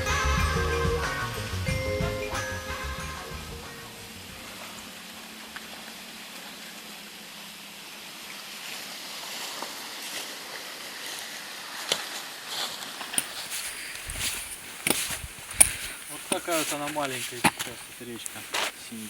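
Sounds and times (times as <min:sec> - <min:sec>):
background music: 0:00.0 - 0:04.8
steady outdoor hiss: 0:00.0 - 0:19.0.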